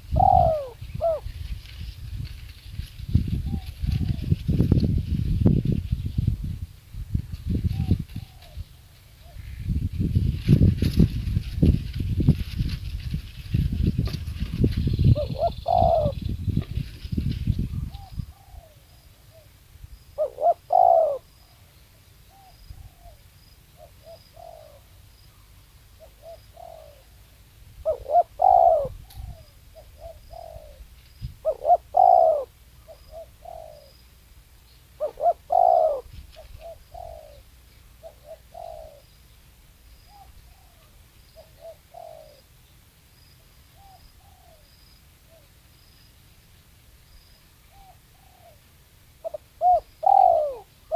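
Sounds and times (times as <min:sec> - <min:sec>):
dove cooing: 0:00.0 - 0:01.5, 0:03.1 - 0:04.7, 0:07.6 - 0:09.6, 0:13.5 - 0:16.9, 0:17.6 - 0:19.5, 0:20.2 - 0:21.6, 0:23.8 - 0:27.2, 0:27.8 - 0:34.0, 0:35.0 - 0:39.2, 0:40.0 - 0:42.5, 0:43.7 - 0:45.5, 0:47.7 - 0:50.9.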